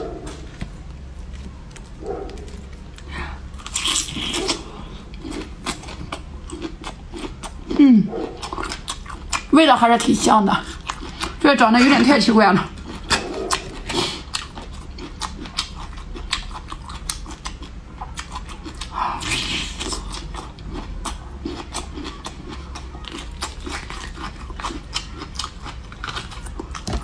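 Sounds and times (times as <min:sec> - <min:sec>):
chewing with wet mouth sounds: 0:01.2 - 0:27.0
loud bite: 0:03.5 - 0:07.4.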